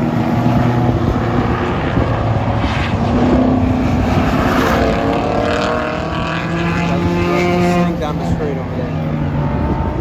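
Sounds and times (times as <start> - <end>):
race car engines: 0.0 - 10.0.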